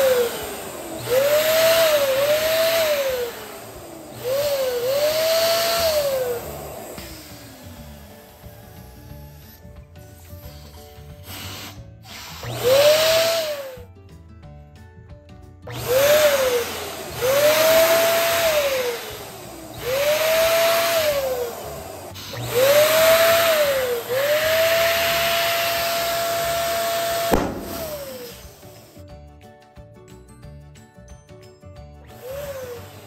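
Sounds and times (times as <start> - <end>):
electric balloon pump whining: 0.0 - 13.9, 15.6 - 29.0, 32.1 - 33.0
sharp snap: 27.2 - 28.9.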